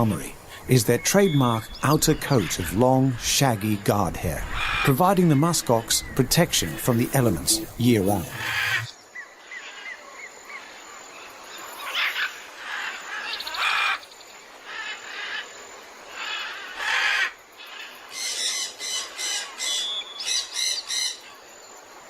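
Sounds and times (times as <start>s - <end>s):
birds squawking and chirping: 0.0s - 10.0s.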